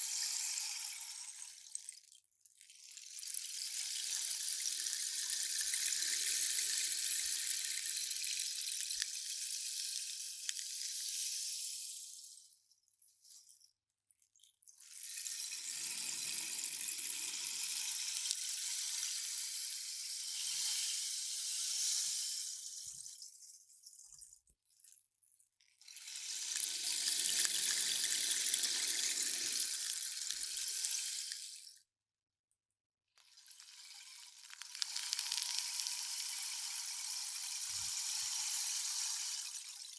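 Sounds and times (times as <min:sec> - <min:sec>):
rainstick pellets trickling: 0:26.0 - 0:31.6, 0:33.6 - 0:39.9.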